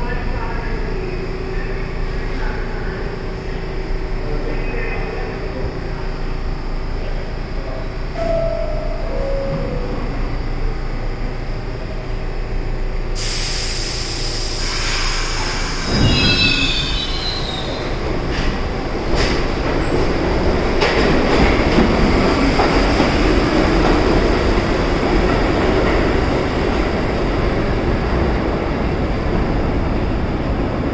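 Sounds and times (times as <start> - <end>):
train rumble: 0.0 - 30.9
subway train wheels squealing: 7.7 - 10.7, 13.2 - 20.3.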